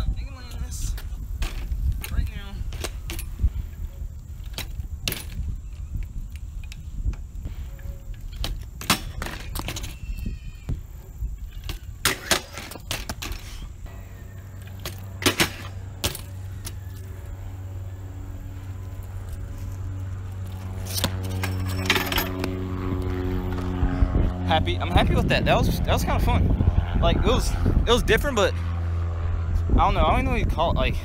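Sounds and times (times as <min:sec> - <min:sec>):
steady low hum: 0:00.0 - 0:31.0
bike metal rattling and clanking: 0:00.8 - 0:10.2, 0:11.6 - 0:17.2, 0:18.8 - 0:22.6
low rumble: 0:13.6 - 0:31.0.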